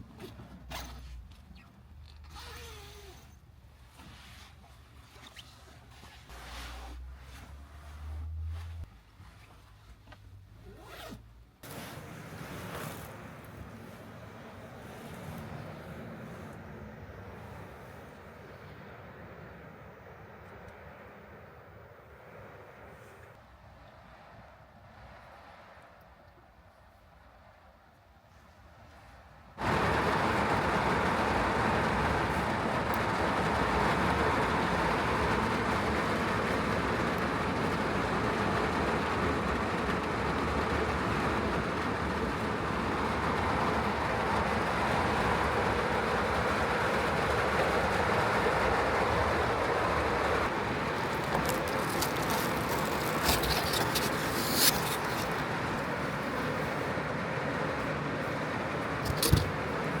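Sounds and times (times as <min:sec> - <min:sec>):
heavy rain drumming on van roof: 0:11.6 - 0:16.4, 0:29.6 - 1:00.0.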